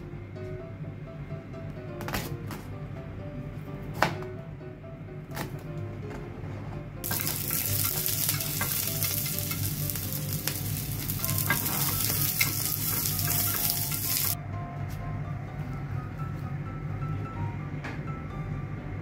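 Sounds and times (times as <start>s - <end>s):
light background music: 0.0s - 19.0s
peppers sizzling in a pan: 7.0s - 14.4s.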